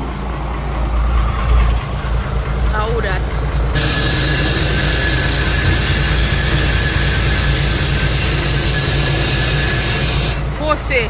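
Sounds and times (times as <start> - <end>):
truck engine idling: 0.0 - 11.0
loud hiss with whistle: 3.8 - 10.4.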